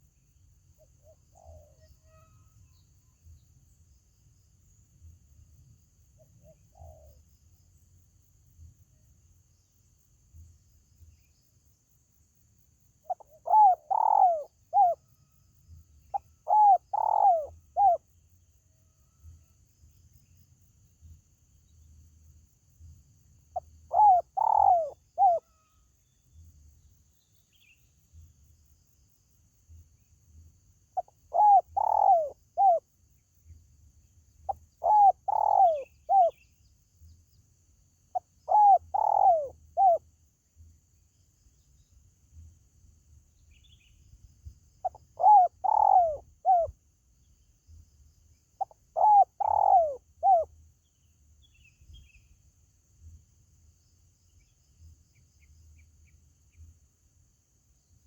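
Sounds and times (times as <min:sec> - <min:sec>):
dove cooing: 0:01.0 - 0:01.9, 0:06.4 - 0:07.2, 0:13.1 - 0:15.0, 0:16.1 - 0:18.0, 0:23.9 - 0:25.6, 0:31.0 - 0:32.8, 0:34.5 - 0:36.4, 0:38.2 - 0:40.0, 0:44.8 - 0:46.7, 0:48.6 - 0:50.5.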